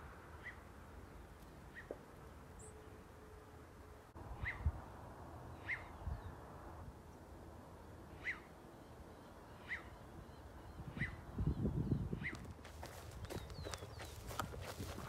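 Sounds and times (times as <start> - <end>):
bird chirping calls: 5.5 - 6.3, 8.1 - 15.0.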